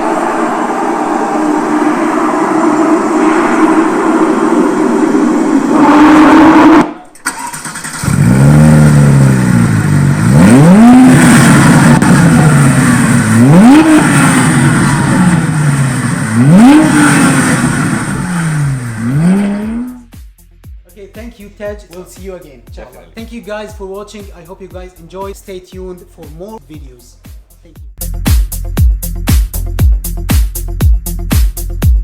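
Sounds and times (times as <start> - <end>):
car engine revving: 0.0 - 20.1.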